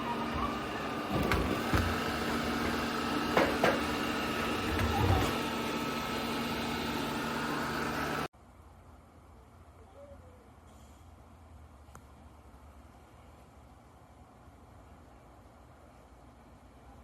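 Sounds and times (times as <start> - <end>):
robot vacuum motor hum: 0.0 - 8.3.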